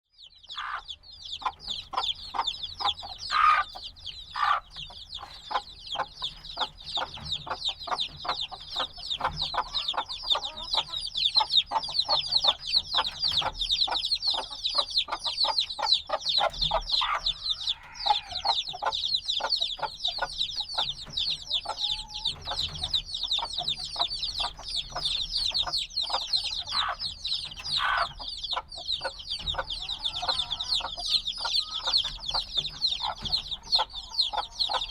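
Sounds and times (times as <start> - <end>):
chicks peeping: 0.0 - 34.9
louder lower chick calls: 0.2 - 34.9.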